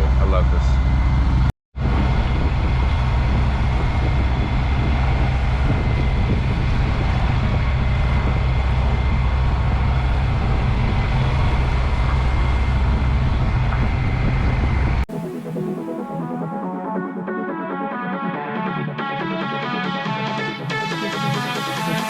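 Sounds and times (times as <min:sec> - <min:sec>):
diesel engine droning: 0:00.0 - 0:15.1.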